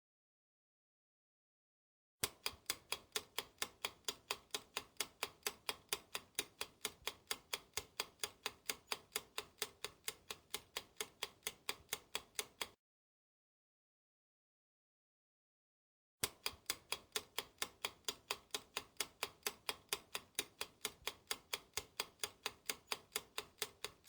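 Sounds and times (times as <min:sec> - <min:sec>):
quick clock-like ticking: 0:02.2 - 0:12.8, 0:16.2 - 0:24.0.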